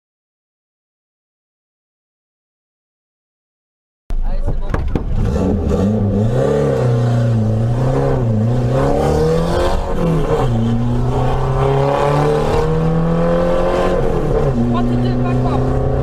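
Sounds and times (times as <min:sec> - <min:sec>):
car engine revving: 0:04.1 - 0:16.0.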